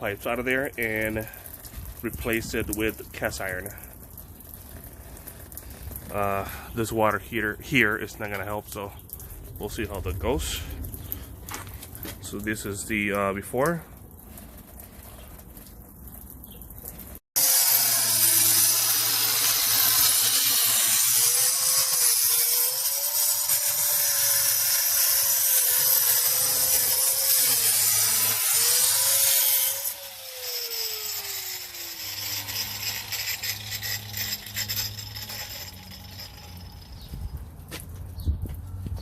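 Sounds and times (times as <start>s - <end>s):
saw blade spinning down: 17.4s - 37.1s
power saw cutting concrete: 17.4s - 37.2s.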